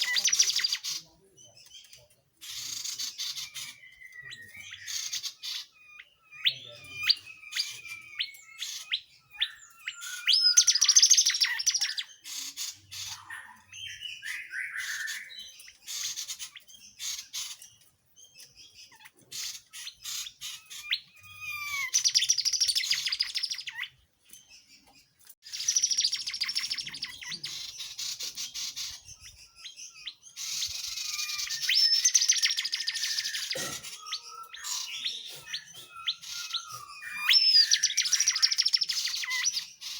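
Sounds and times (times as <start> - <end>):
fast chattering bird trills: 0.0 - 1.1, 2.4 - 17.8, 18.7 - 23.9, 25.5 - 39.9
songbird whistled notes: 2.6 - 12.4, 13.0 - 16.4, 20.0 - 24.0, 25.5 - 39.9.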